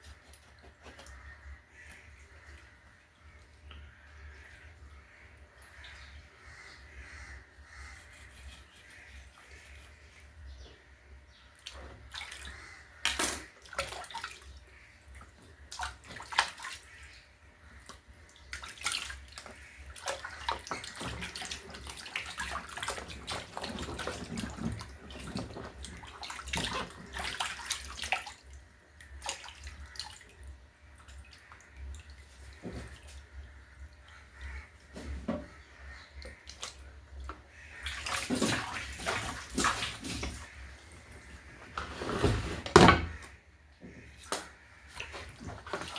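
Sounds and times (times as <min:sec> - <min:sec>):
water splashing in a basin: 0:11.5 - 0:41.5, 0:44.0 - 0:45.9.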